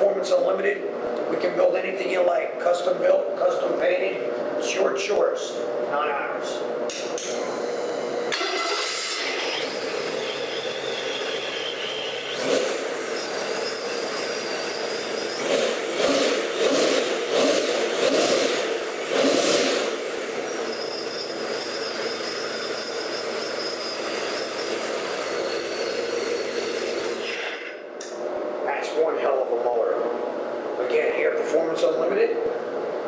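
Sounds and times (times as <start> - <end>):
supercharger whine: 7.1 - 29.8
engine idling and revving: 8.3 - 27.3.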